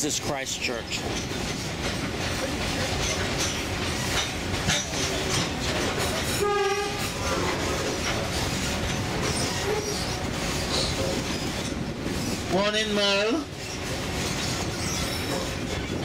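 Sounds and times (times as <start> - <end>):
train rumbling on track: 0.0 - 16.0
train horn blast: 6.3 - 7.3.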